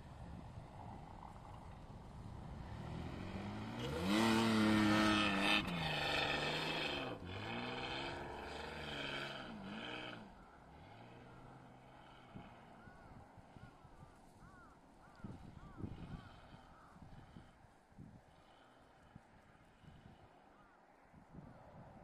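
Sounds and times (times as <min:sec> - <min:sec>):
car engine revving hard: 0:03.2 - 0:10.2.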